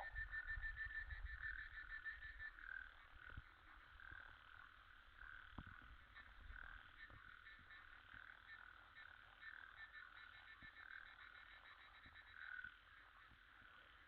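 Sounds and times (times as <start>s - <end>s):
frogs calling: 0.0s - 14.0s.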